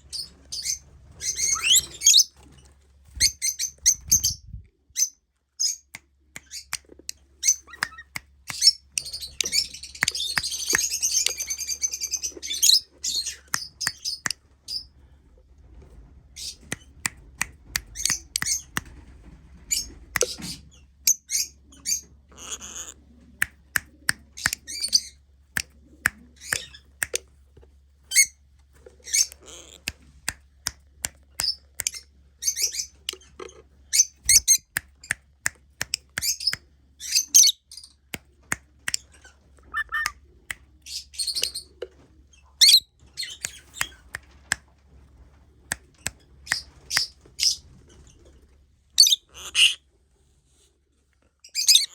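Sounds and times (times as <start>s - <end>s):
lovebirds chirping and squawking: 0.0s - 6.8s, 7.4s - 15.0s, 17.7s - 18.8s, 19.6s - 27.2s, 28.1s - 28.4s, 29.0s - 29.9s, 31.4s - 35.2s, 35.9s - 38.1s, 38.9s - 44.1s, 46.5s - 48.2s, 49.0s - 49.9s, 51.4s - 51.9s.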